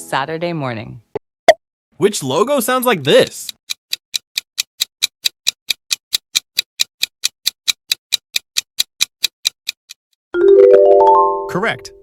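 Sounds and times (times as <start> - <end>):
fast clock-like ticking: 2.6 - 10.0.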